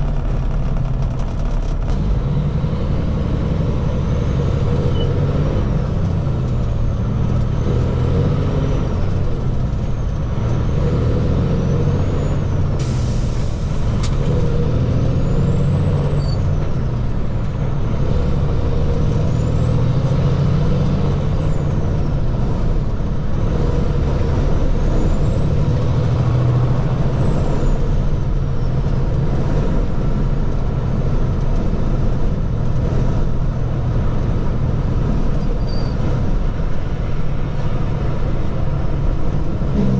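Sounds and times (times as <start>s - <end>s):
truck engine rumbling: 0.0s - 39.9s
hiss burst: 12.8s - 14.6s.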